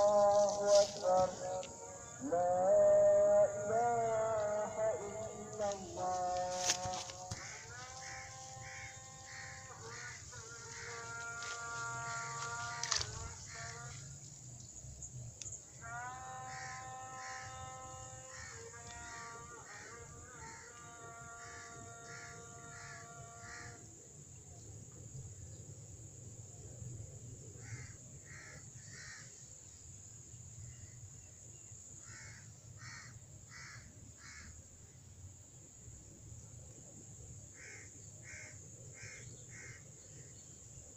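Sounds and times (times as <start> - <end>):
bird calling: 0.0 - 14.1
high-pitched hiss: 0.0 - 40.9.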